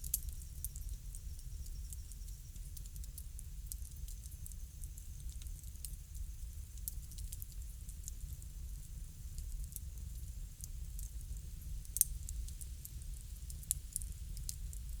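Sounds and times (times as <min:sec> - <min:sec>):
low fire rumble: 0:00.0 - 0:15.0
wood fire crackling: 0:00.0 - 0:15.0.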